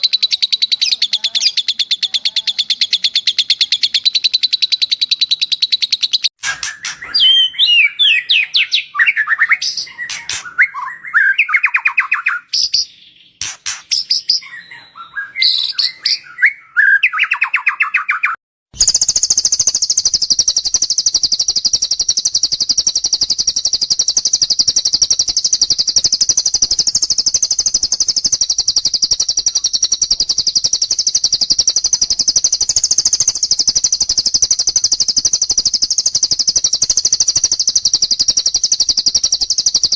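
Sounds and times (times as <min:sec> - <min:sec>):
high-pitched rapid bird trill: 0:00.0 - 0:39.9
songbird chirping: 0:00.0 - 0:39.9
sharp clicks: 0:05.2 - 0:07.3, 0:09.6 - 0:10.6, 0:13.4 - 0:14.4, 0:18.8 - 0:39.9.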